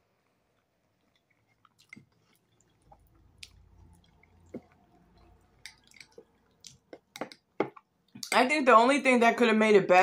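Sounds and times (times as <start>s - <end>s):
person chewing food: 0.0s - 8.4s.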